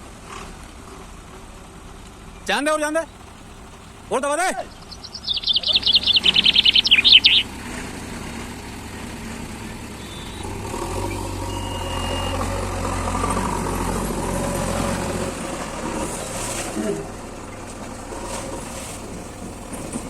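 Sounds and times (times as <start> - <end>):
diesel engine running: 0.0 - 20.0
bird chirping rapidly: 3.0 - 8.0, 9.7 - 12.6.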